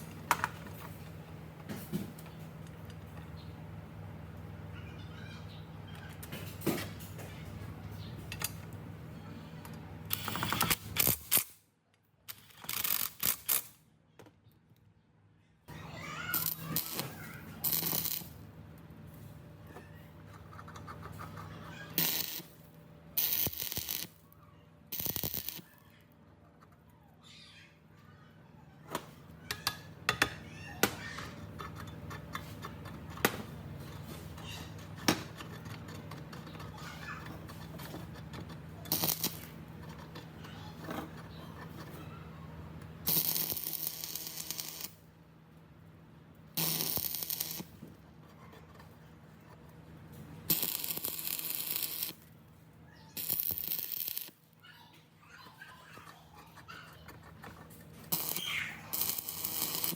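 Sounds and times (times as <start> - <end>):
metal parts and tools clinking: 31.2 - 42.0.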